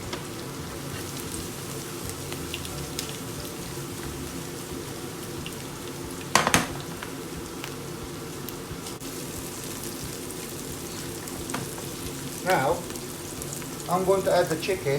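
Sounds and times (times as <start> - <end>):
small pops of frying: 0.0 - 14.8
onion and garlic sizzling in oil: 0.0 - 14.9
utensil knocking a pan: 6.3 - 6.9.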